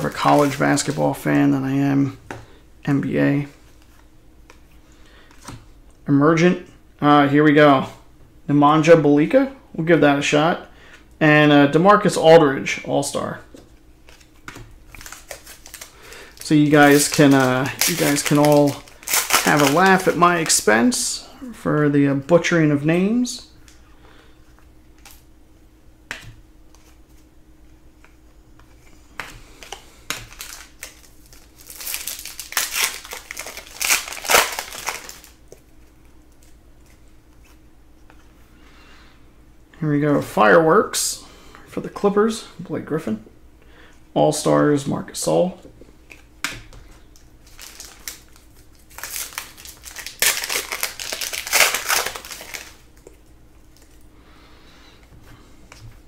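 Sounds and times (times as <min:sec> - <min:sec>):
plastic wrapper tearing and crinkling: 0:00.0 - 0:01.2, 0:14.0 - 0:20.7, 0:29.6 - 0:36.6, 0:47.2 - 0:54.0.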